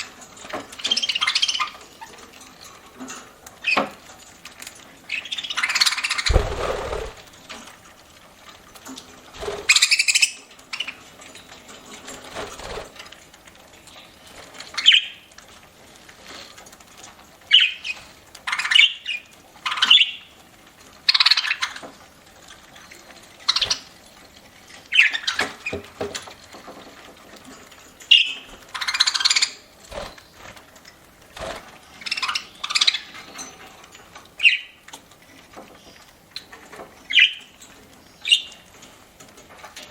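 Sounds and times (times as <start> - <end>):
budgerigars chirping: 0.8 - 1.8, 5.1 - 7.2, 14.8 - 15.2, 28.1 - 29.6, 32.0 - 33.2
low bump: 6.3 - 7.2.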